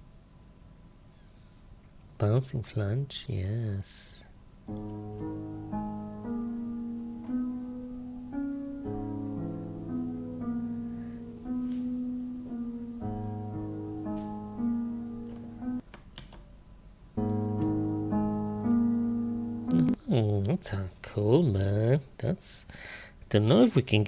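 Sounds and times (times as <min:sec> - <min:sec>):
piano with flanger effect: 0:04.7 - 0:15.8, 0:17.2 - 0:20.0.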